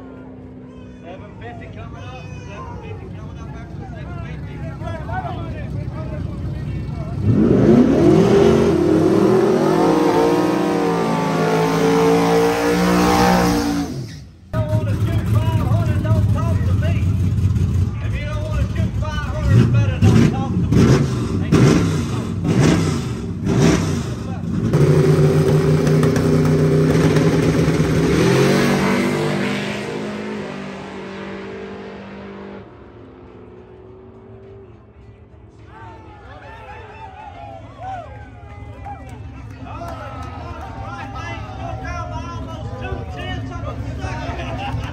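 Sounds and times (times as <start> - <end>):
truck engine at full throttle: 2.7 - 35.6.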